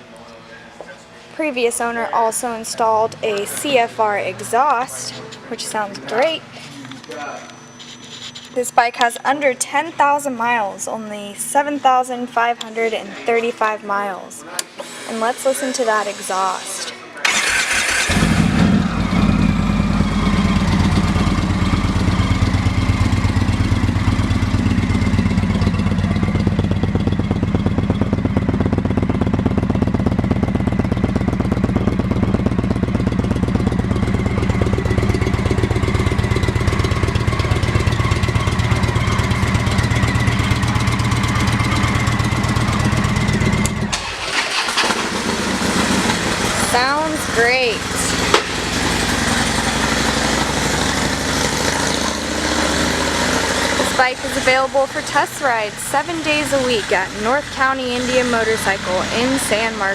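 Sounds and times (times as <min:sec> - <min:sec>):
motorcycle engine idling: 0:17.3 - 0:59.9.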